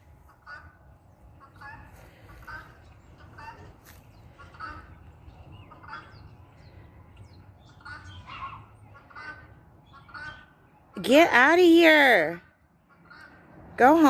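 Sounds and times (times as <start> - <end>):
large bird calling: 0.2 - 11.2.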